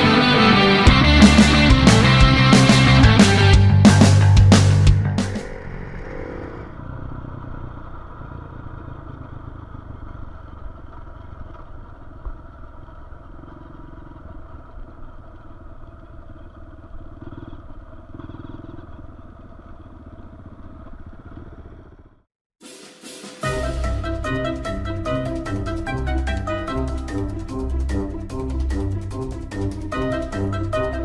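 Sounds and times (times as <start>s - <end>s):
dirt bike engine running: 0.9s - 22.3s
road and wind noise: 4.4s - 22.2s.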